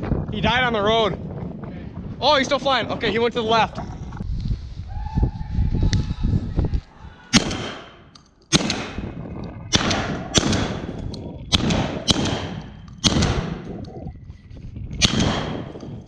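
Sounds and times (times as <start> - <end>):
shotgun blasts with echo: 7.3 - 13.8, 15.0 - 16.0.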